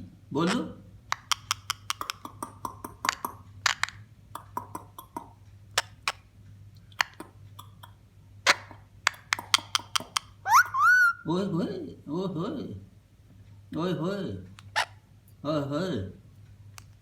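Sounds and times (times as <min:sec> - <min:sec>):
faint steady hum: 0:00.0 - 0:17.0
mouth clicks and clucks: 0:01.1 - 0:11.2.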